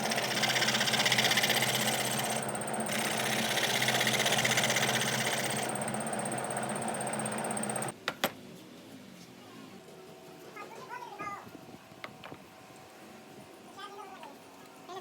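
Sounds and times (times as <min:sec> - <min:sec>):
power tool running on wood: 0:00.0 - 0:07.9.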